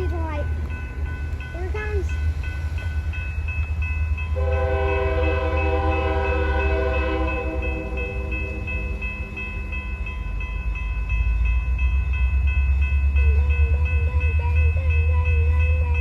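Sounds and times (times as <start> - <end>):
train rumbling past: 0.0 - 16.0
train horn: 4.4 - 9.0.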